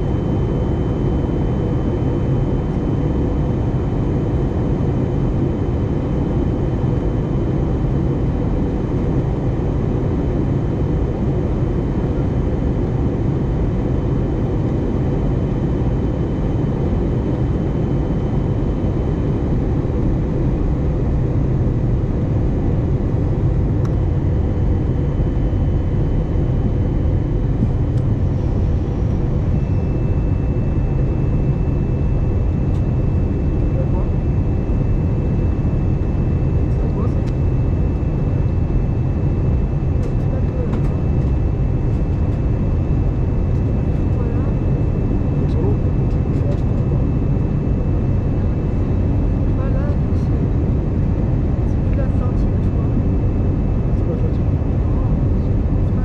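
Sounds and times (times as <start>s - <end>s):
airliner cabin roar: 0.0s - 56.0s
faint high whine: 23.5s - 56.0s.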